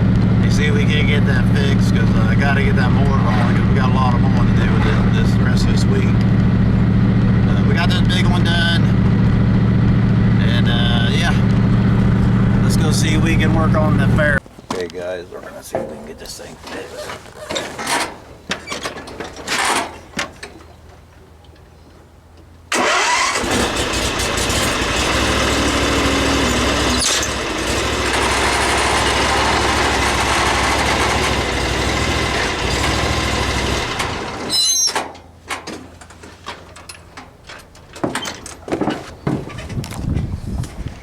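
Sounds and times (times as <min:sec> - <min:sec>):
riding mower engine running: 0:00.0 - 0:14.4, 0:22.7 - 0:40.8.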